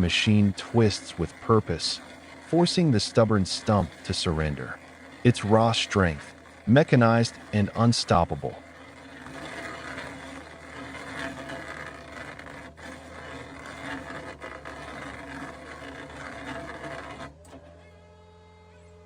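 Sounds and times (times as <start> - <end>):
excavator engine and hydraulics: 0.0 - 9.9
grinding and rattling stump: 0.0 - 17.6.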